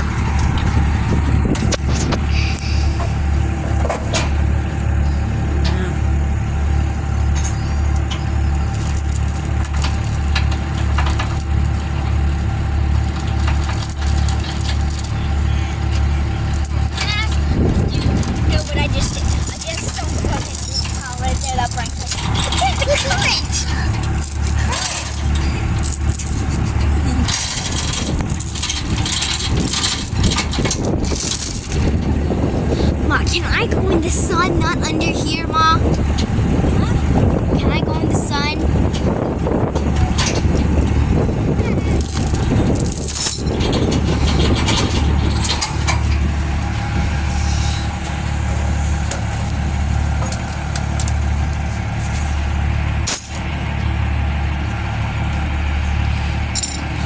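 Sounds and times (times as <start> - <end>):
engine idling: 0.0 - 57.0
steady low rumble: 0.0 - 57.0
metallic clinking and jingling: 0.1 - 5.3, 6.7 - 33.0, 38.4 - 51.1, 52.1 - 57.0.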